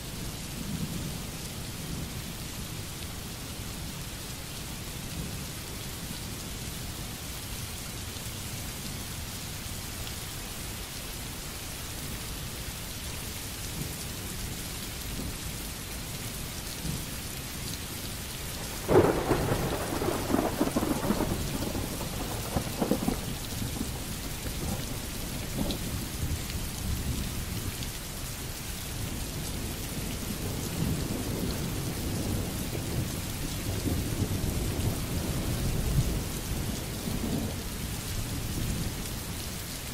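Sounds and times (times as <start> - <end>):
steady rain: 0.0 - 39.9
thunder clap and rumbles: 18.6 - 27.2.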